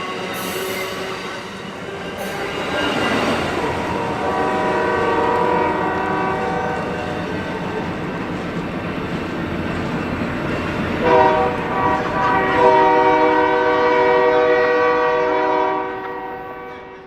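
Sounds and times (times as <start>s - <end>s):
train rumbling: 0.0s - 17.0s
locomotive air horn: 3.6s - 7.4s, 11.0s - 17.0s.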